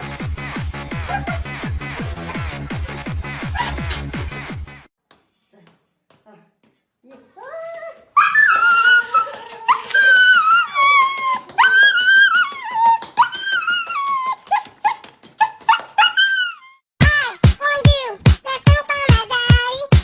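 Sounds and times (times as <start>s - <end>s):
dog whining and whimpering: 1.0s - 4.3s, 7.5s - 16.8s.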